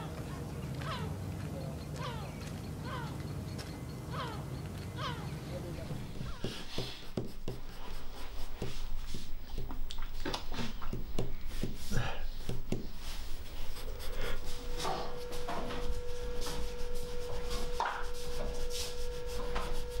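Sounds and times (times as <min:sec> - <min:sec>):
steady tone: 0:05.6 - 0:20.0
pencil scratching on paper: 0:05.7 - 0:20.0.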